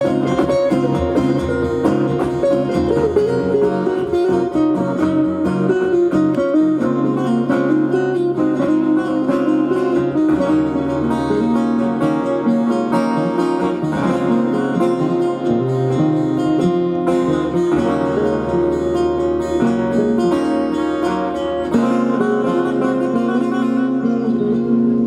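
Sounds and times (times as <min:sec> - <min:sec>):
live band with guitars: 0:00.0 - 0:25.0.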